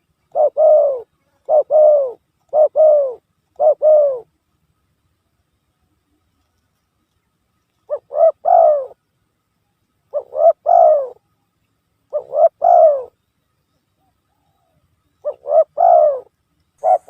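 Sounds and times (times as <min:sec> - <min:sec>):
dove cooing: 0:00.0 - 0:04.3, 0:07.8 - 0:09.0, 0:10.1 - 0:11.3, 0:12.1 - 0:13.2, 0:14.0 - 0:17.0.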